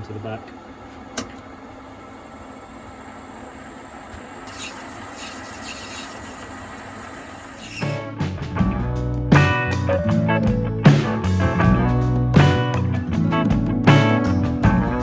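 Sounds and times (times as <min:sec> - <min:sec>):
metal lathe humming and whining: 0:01.7 - 0:08.0.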